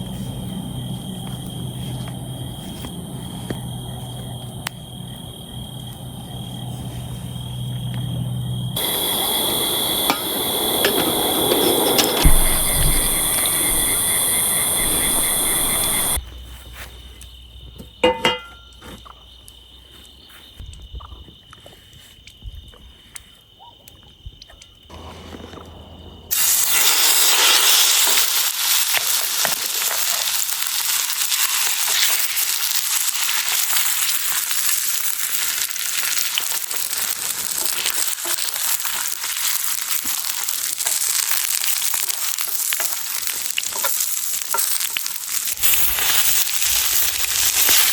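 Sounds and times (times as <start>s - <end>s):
high insect-like tone: 0.0s - 16.2s, 26.2s - 47.9s
food sizzling in a hot pan: 8.8s - 16.2s, 26.3s - 47.9s.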